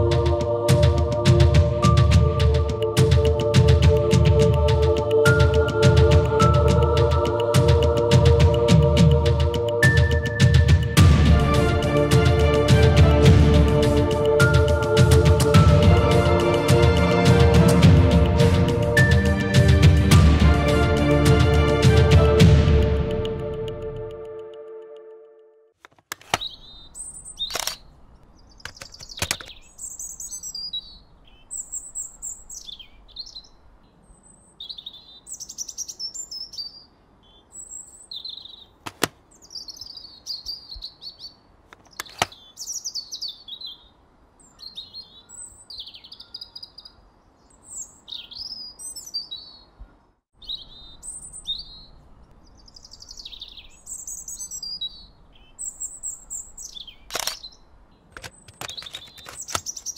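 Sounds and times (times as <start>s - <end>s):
sharp clicks: 23.0s - 25.2s, 25.8s - 26.6s, 27.2s - 29.6s, 38.8s - 39.2s, 41.7s - 42.4s, 57.0s - 59.9s
small birds chirping: 26.2s - 59.9s.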